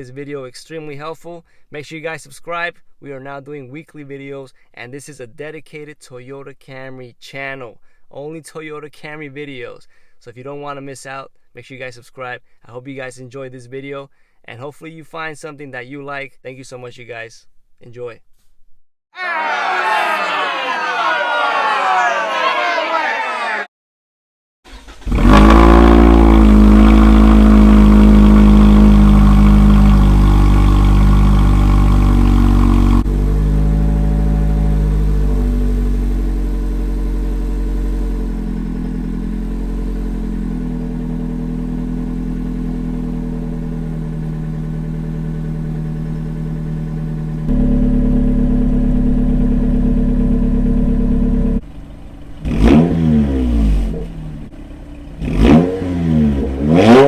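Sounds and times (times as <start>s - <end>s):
car engine drone through exhaust: 24.7s - 57.0s
engine revving: 24.7s - 57.0s.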